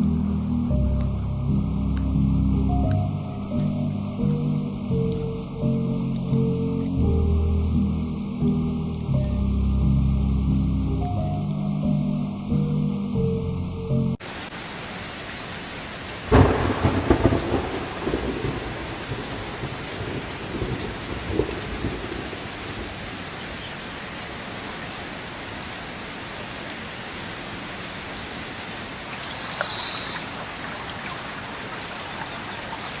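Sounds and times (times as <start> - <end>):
steady rain: 0.0 - 33.0
thunderclap rumbling: 16.2 - 23.6.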